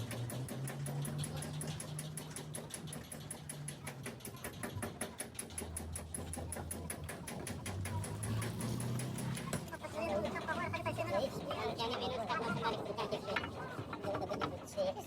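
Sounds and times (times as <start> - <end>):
rapid mechanical clicking: 0.0 - 12.0.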